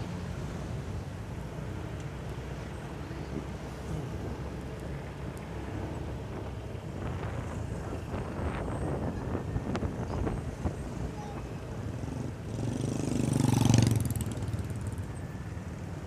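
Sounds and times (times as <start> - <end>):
motorcycle engine and road rumble: 0.0 - 16.0
wind buffeting microphone: 6.0 - 11.1.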